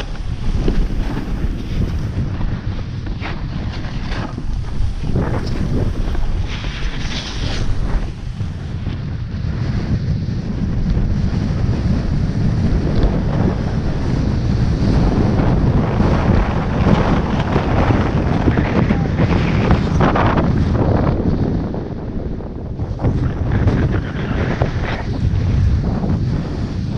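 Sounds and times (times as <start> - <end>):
wind buffeting microphone: 0.0 - 26.9.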